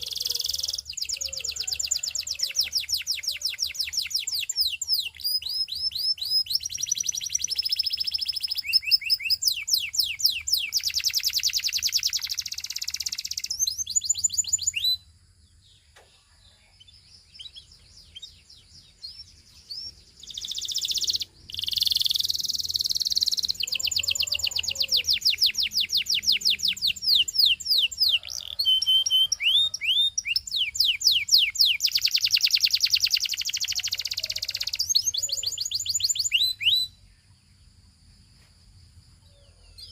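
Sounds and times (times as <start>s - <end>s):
canary singing trills: 0.0s - 37.9s, 39.3s - 39.9s.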